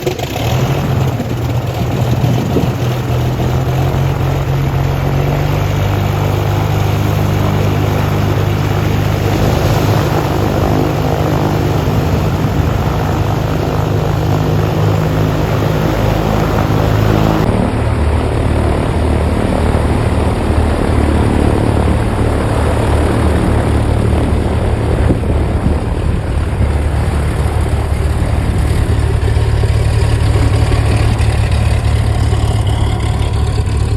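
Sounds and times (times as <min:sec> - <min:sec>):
propeller aircraft engines droning: 0:00.0 - 0:33.9.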